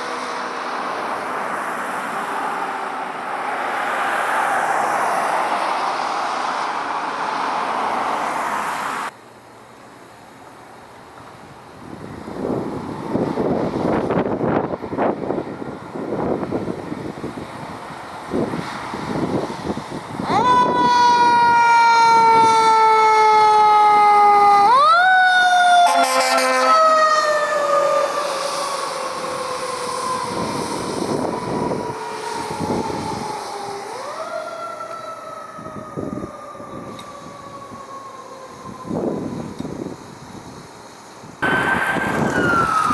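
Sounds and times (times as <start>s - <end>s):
fire truck siren wailing: 0.0s - 9.1s, 13.2s - 40.6s, 41.4s - 42.9s
horn blast: 25.8s - 26.9s
truck passing rumble: 41.4s - 42.9s.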